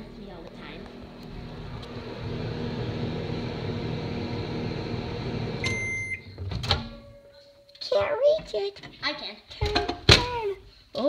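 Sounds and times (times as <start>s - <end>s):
microwave oven humming: 0.0s - 7.2s.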